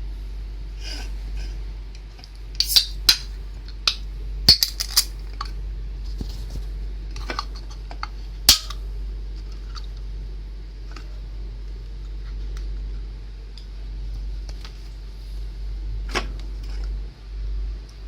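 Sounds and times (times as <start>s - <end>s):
fridge low hum: 0.0s - 18.0s.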